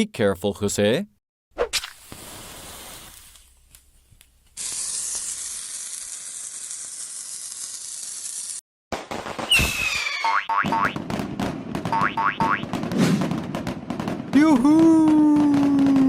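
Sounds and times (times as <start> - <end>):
cartoon hissing sizzle: 1.8 - 3.4, 4.6 - 8.6.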